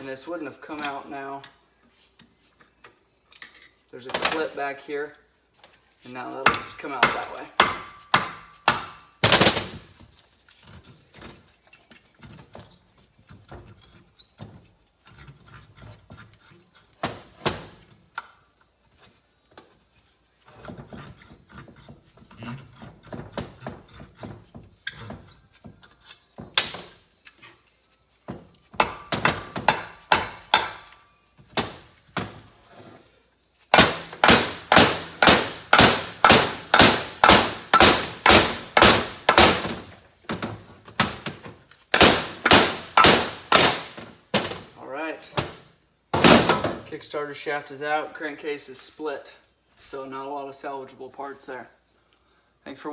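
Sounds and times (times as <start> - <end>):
hammer striking metal: 6.4 - 9.3, 28.8 - 31.0, 33.7 - 39.7, 41.9 - 43.9.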